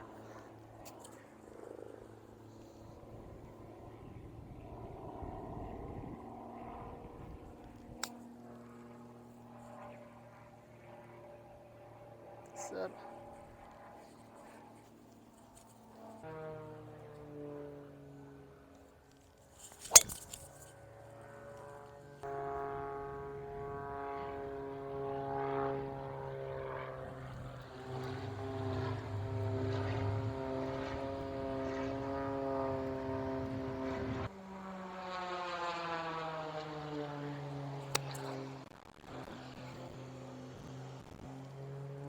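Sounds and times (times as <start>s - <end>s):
propeller airplane droning: 0.0s - 42.0s
putter striking golf ball: 19.7s - 20.6s.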